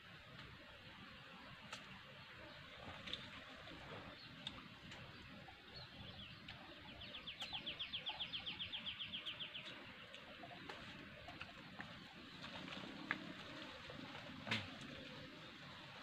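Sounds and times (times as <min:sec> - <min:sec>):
faint ticks and rustles: 0:01.6 - 0:05.4, 0:09.2 - 0:16.0.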